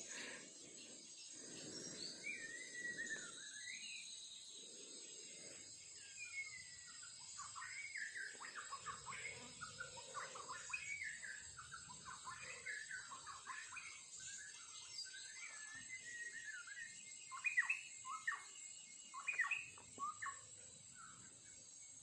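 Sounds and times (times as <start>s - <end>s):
songbird singing: 0.0s - 22.0s.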